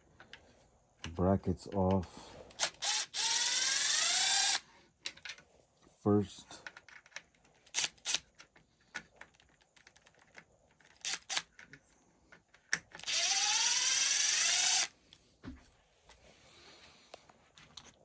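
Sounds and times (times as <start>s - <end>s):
electric screwdriver whining: 2.5s - 4.6s, 11.0s - 11.5s, 13.0s - 14.9s.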